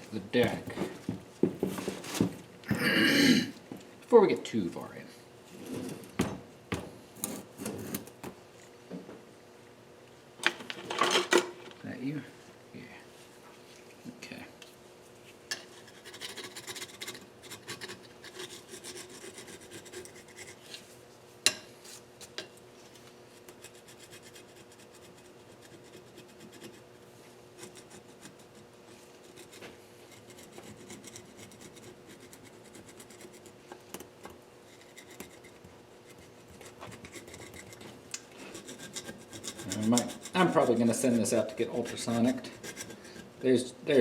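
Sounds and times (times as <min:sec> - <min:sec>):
scraping on metal cylinder head: 0:34.7 - 0:43.4.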